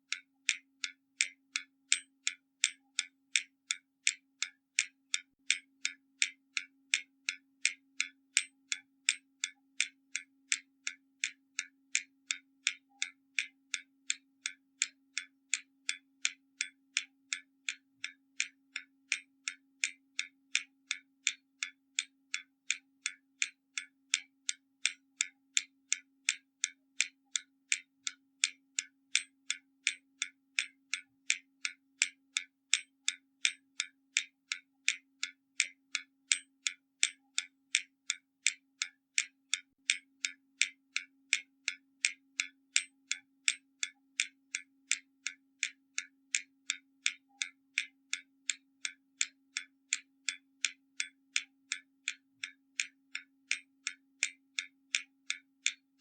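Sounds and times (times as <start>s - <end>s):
clock ticking: 0.0s - 56.0s.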